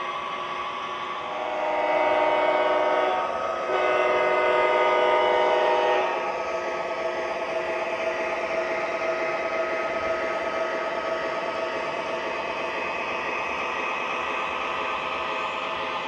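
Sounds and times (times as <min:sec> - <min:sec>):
model train diesel horn blasts: 0:01.2 - 0:06.4.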